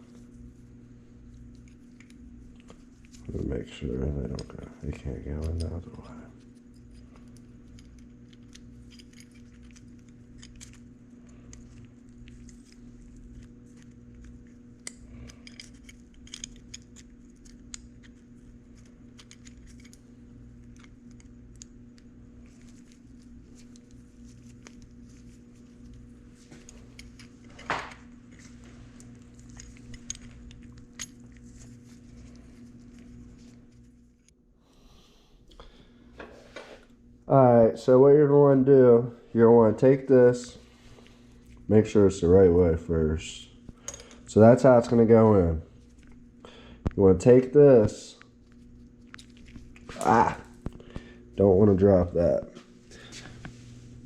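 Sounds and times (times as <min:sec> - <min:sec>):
steady low hum: 0:00.0 - 0:54.0
small metal parts clinking: 0:05.4 - 0:20.0, 0:26.6 - 0:32.4, 0:43.8 - 0:44.3.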